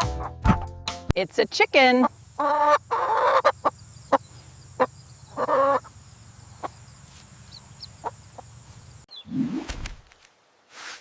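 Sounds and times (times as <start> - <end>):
chicken clucking: 1.9 - 6.8.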